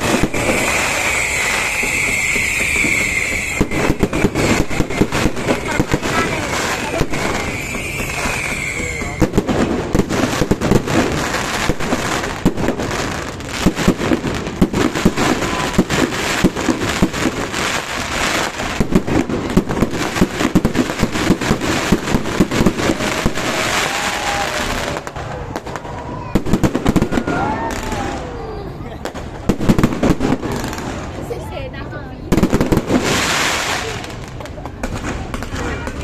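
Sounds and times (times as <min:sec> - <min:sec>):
firework whistling glide: 0:00.0 - 0:28.4
fireworks bangs and crackles: 0:00.0 - 0:36.0.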